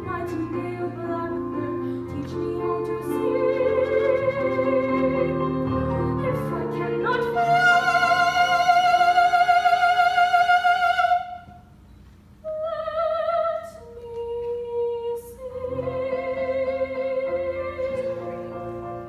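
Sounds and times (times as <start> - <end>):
piano chords: 0.0 - 11.5, 15.4 - 19.0
woman singing operatically: 0.0 - 11.5, 12.5 - 18.6.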